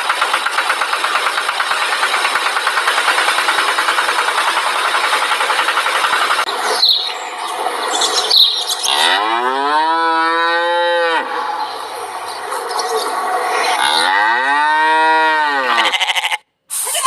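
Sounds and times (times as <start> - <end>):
cow mooing: 8.9 - 11.6, 13.5 - 16.4.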